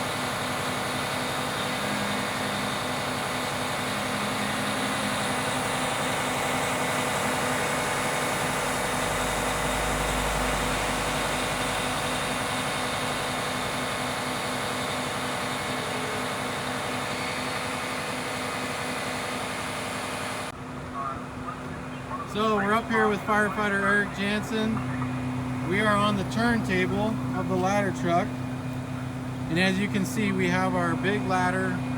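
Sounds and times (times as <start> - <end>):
truck engine running: 0.0 - 31.9.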